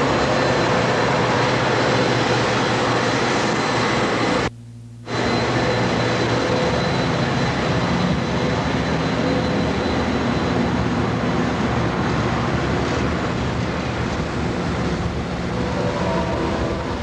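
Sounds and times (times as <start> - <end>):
low engine drone: 0.0 - 17.0
train rumbling: 0.0 - 17.0
faint higher tones: 4.5 - 6.9, 14.3 - 17.0.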